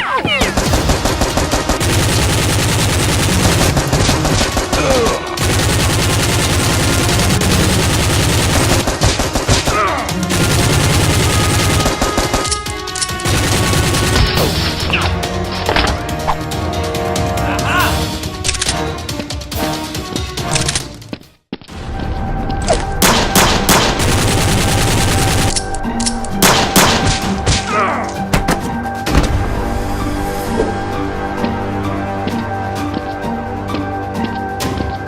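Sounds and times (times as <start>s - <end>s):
automatic gunfire bursts: 0.5s - 9.7s.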